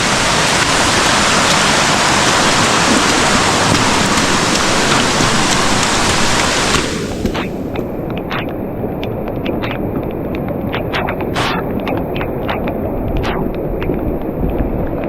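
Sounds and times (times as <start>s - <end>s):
loud rush of falling water: 0.0s - 7.7s.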